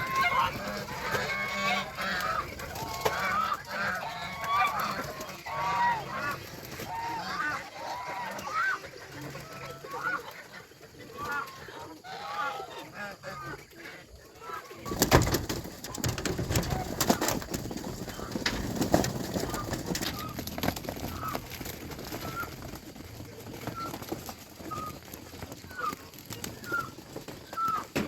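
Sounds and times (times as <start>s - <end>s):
poultry soft calls: 0.0s - 28.0s
clatter of clicks and rustling: 14.9s - 28.0s.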